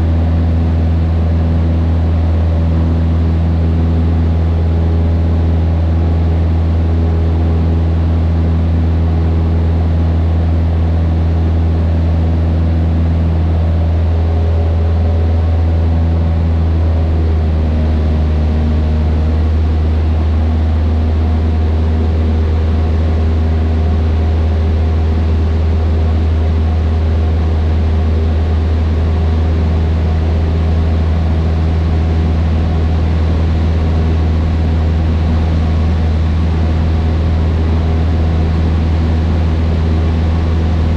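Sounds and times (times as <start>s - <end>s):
airplane engine and propeller drone: 0.0s - 40.9s.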